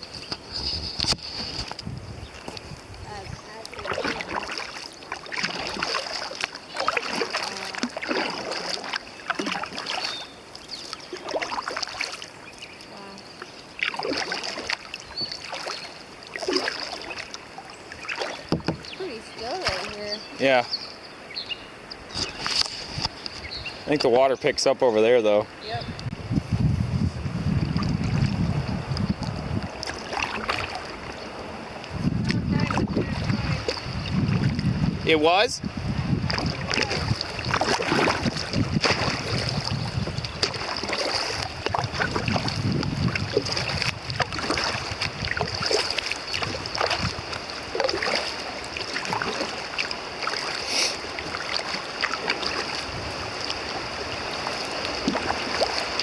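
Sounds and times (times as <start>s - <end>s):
wind buffeting microphone: 0.0s - 4.6s, 18.4s - 20.6s, 21.9s - 50.2s, 51.0s - 56.0s
kayak paddle splashing: 0.0s - 26.2s, 26.9s - 56.0s.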